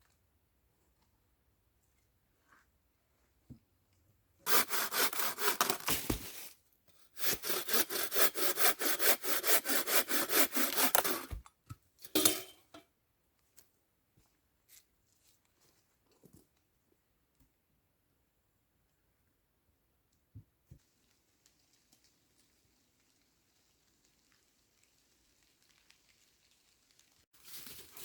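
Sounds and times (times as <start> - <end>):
hand saw cutting wood: 4.5 - 6.2, 7.2 - 11.4.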